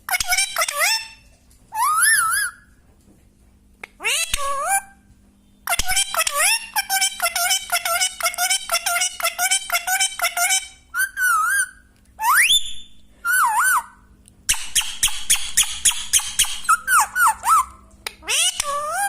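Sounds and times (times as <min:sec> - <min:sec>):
parrot whistling and squawking: 0:00.1 - 0:02.7, 0:04.0 - 0:05.0, 0:05.7 - 0:19.0
parrot chattering calls: 0:04.0 - 0:05.0, 0:05.7 - 0:12.5, 0:13.3 - 0:19.0.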